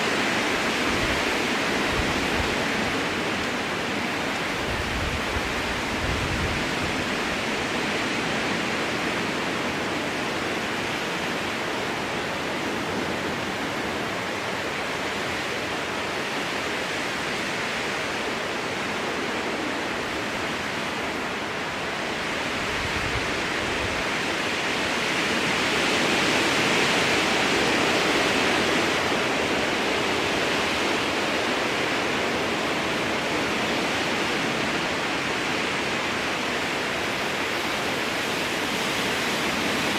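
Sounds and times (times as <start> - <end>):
strong wind through trees: 0.0 - 39.9.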